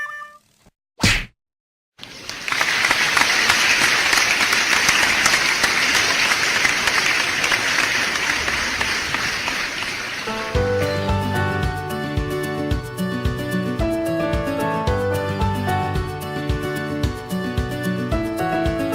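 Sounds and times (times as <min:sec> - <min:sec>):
crowd applauding: 0:02.0 - 0:11.7
music: 0:10.3 - 0:18.9.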